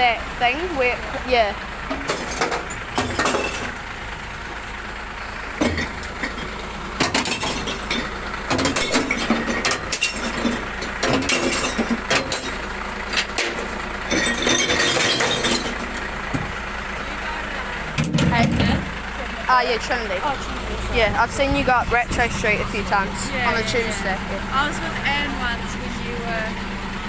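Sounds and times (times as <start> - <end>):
truck engine running: 0.0 - 27.0
glass bottles clinking and crashing: 1.9 - 3.8, 5.6 - 16.1.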